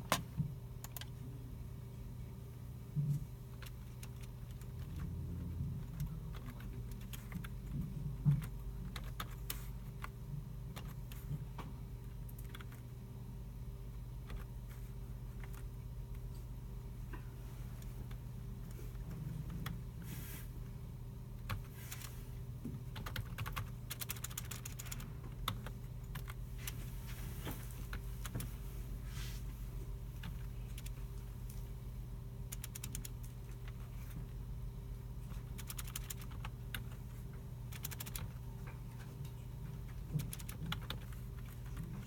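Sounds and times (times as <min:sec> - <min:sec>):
low hum of computers: 0:00.0 - 0:42.0
keyboard typing: 0:00.8 - 0:01.2, 0:03.5 - 0:11.4, 0:12.2 - 0:12.9, 0:21.4 - 0:22.1, 0:22.8 - 0:26.4, 0:27.9 - 0:28.5, 0:30.2 - 0:31.0, 0:32.5 - 0:33.8, 0:35.3 - 0:37.0, 0:37.7 - 0:38.4, 0:39.9 - 0:42.0.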